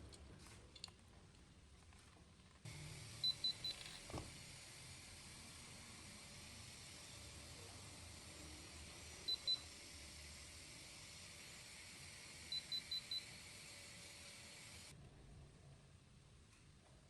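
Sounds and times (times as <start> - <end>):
faint hiss: 2.6 - 15.0.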